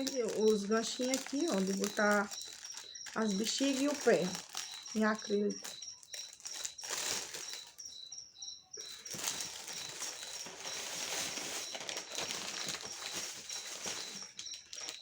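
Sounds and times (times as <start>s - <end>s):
plastic packaging crinkling: 0.0s - 8.1s, 8.8s - 15.0s
small bird chirping: 0.0s - 15.0s.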